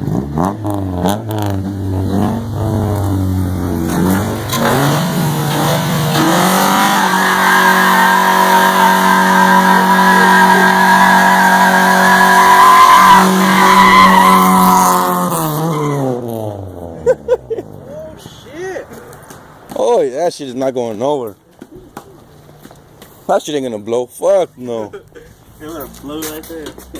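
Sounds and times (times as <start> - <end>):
engine revving at high rpm: 0.0 - 13.7
tires squealing: 0.4 - 17.0.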